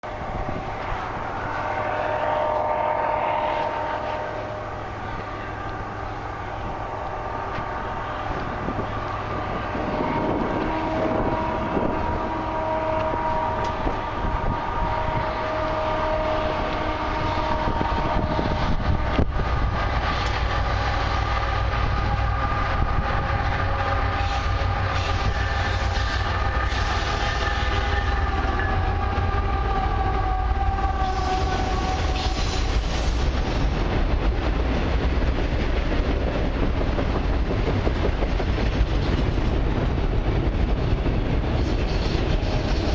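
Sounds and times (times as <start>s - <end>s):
train rumbling: 0.0s - 42.9s
locomotive air horn chord: 1.3s - 4.9s, 9.6s - 19.2s.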